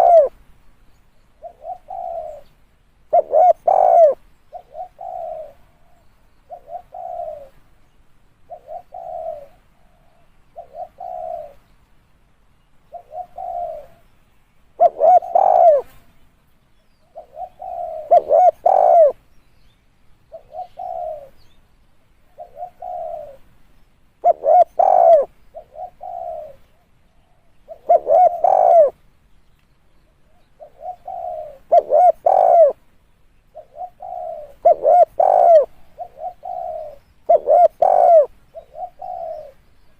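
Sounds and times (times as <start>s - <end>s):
dove cooing: 0.0s - 0.4s, 1.4s - 7.6s, 8.4s - 11.6s, 12.9s - 14.1s, 14.7s - 16.1s, 17.0s - 19.2s, 20.3s - 21.6s, 22.2s - 23.5s, 24.2s - 29.0s, 30.1s - 32.8s, 33.5s - 39.6s.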